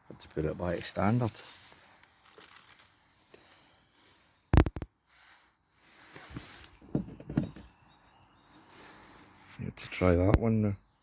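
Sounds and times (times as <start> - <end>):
faint handling noises: 0.2 - 7.8.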